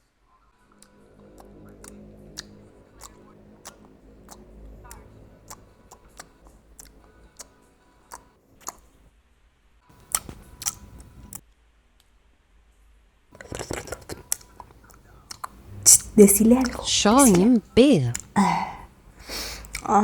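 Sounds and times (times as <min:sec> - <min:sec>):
mouth clicks and smacks: 0:01.4 - 0:08.9, 0:10.0 - 0:11.4, 0:13.4 - 0:20.0.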